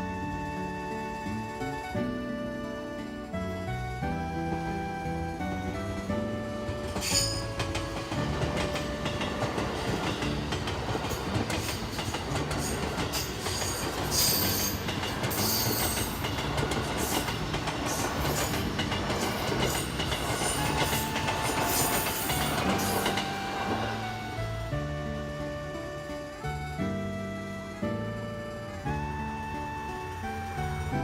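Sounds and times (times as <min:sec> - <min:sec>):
train passing close by: 0:00.0 - 0:31.0
high-pitched wheel squeal: 0:06.0 - 0:10.4, 0:12.6 - 0:24.7.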